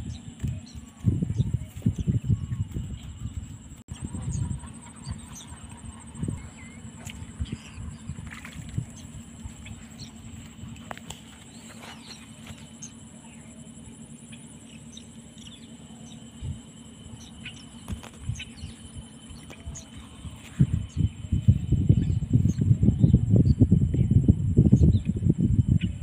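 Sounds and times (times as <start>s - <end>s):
birds chirping: 0.0s - 26.0s
steady low rumble: 0.0s - 26.0s.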